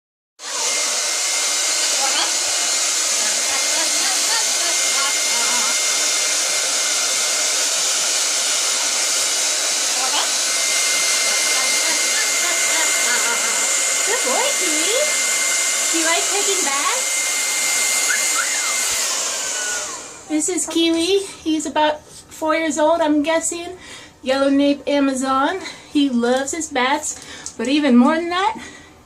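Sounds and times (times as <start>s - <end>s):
hair dryer blowing: 0.4s - 21.9s.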